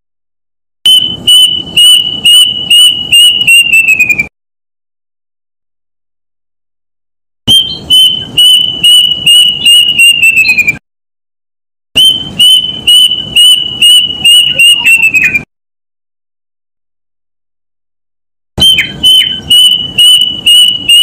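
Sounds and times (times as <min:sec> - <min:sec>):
bird whistled song: 0:00.8 - 0:04.3, 0:07.5 - 0:10.8, 0:12.0 - 0:15.5, 0:18.6 - 0:21.0.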